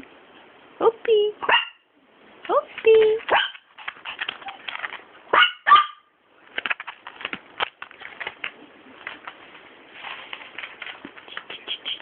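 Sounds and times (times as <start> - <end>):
puppy yipping: 1.4 - 1.8, 3.3 - 3.6, 5.3 - 6.1
small clicks and scratches: 2.7 - 5.1, 6.5 - 12.0.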